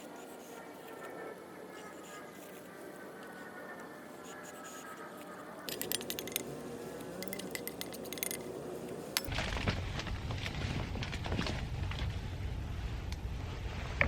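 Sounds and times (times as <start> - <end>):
small hard objects clinking: 5.7 - 6.5, 7.2 - 8.5.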